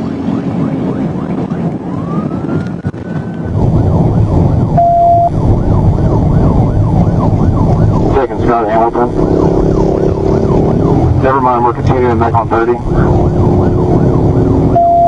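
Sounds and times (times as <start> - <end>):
car engine and road noise: 0.0 - 15.0
police siren wailing and yelping: 0.0 - 15.0
short steady beep: 4.8 - 5.3, 14.8 - 15.0.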